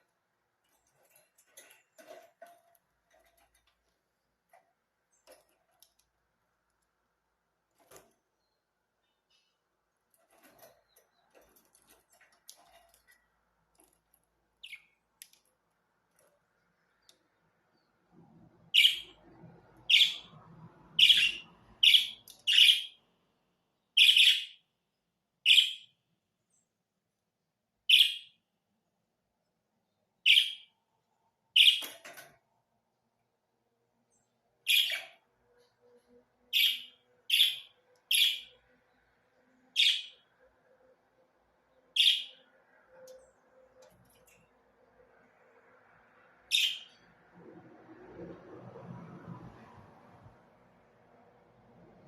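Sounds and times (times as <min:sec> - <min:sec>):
budgerigar chirping: 0:18.8 - 0:19.1, 0:19.9 - 0:20.3, 0:21.0 - 0:23.0, 0:24.0 - 0:24.6, 0:27.9 - 0:28.3, 0:30.3 - 0:30.7, 0:34.7 - 0:35.2, 0:36.6 - 0:38.5, 0:42.0 - 0:42.4.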